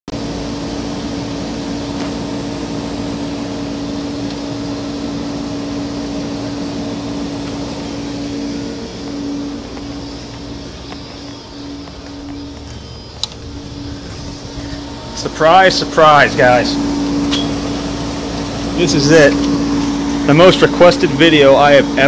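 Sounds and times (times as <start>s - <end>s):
machine hum: 0.1s - 22.0s
air conditioner fan rushing: 0.2s - 22.0s.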